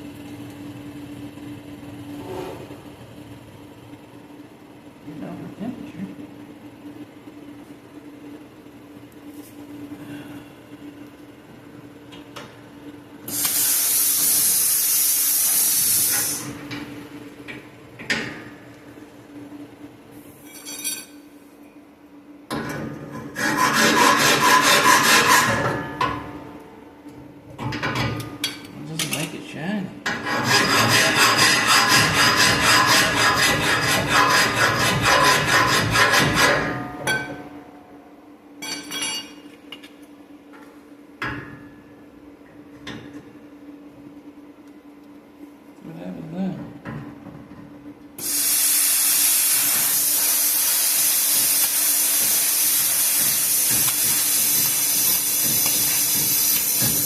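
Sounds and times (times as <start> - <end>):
torch air hissing: 13.3 - 16.6, 48.2 - 57.0
plasma arc crackling: 48.2 - 57.0.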